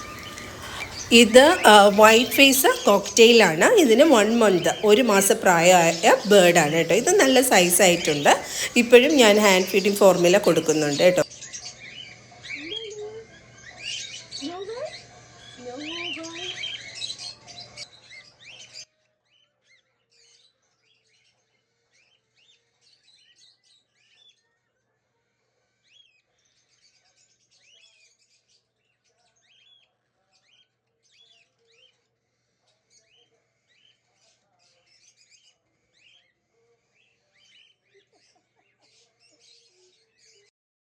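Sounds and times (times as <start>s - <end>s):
cockatiels chirping: 0.0s - 17.8s.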